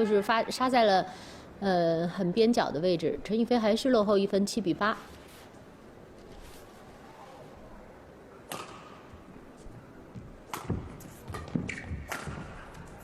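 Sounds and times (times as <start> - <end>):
racket hitting shuttlecock: 8.4 - 9.2, 10.5 - 13.0.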